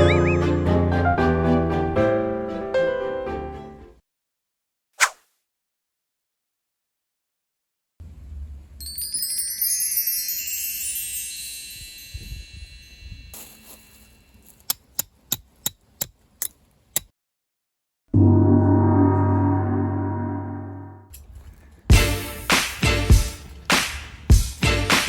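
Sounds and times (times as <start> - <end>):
shimmering high chime tones: 8.8 - 14.3
deep gong-like hit: 18.2 - 21.0.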